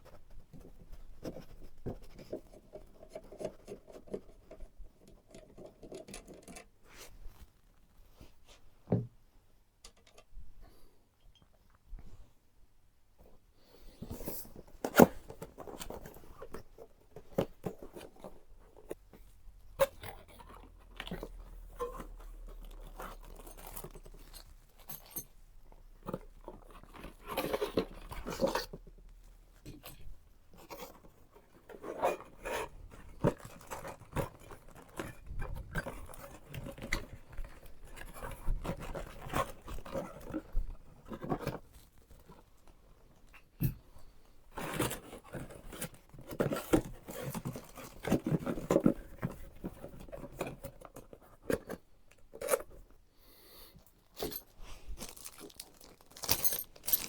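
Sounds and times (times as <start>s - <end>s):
clicks and knocks of handling: 0.0s - 7.2s, 9.8s - 10.4s
packaging rustling: 54.2s - 57.0s.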